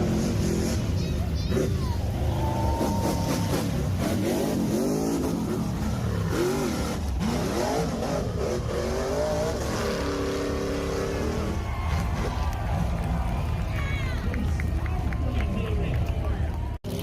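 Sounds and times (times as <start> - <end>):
vehicle engine revving: 0.0 - 13.4.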